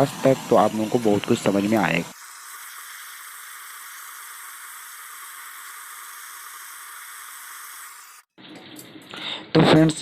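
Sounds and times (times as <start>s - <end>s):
torch flame hissing: 0.0s - 8.3s.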